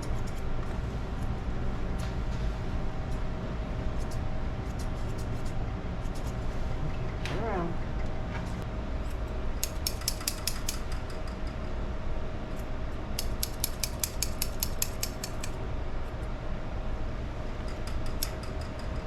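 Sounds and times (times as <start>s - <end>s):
steady background hum: 0.0s - 19.0s
grooming shears snipping: 9.6s - 10.8s, 13.2s - 15.6s.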